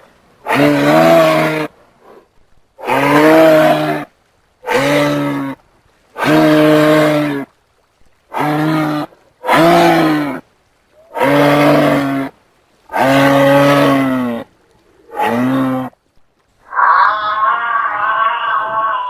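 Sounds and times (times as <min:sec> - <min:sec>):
animal mooing: 0:00.5 - 0:01.7, 0:11.1 - 0:12.3, 0:12.9 - 0:14.5, 0:15.1 - 0:16.0, 0:16.6 - 0:19.0.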